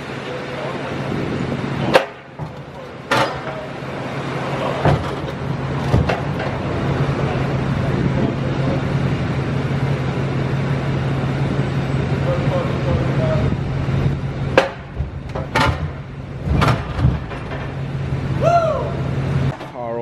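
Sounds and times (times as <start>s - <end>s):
vehicle engine running: 0.0s - 19.7s
sharp metallic clunks: 1.8s - 7.0s, 14.4s - 18.2s.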